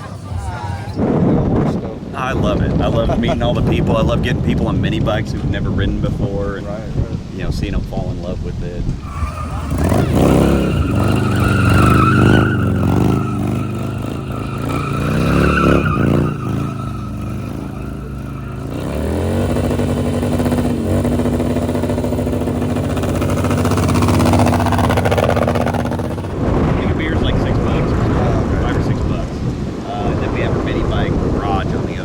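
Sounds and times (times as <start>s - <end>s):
motorcycle engine revving: 8.8s - 32.0s.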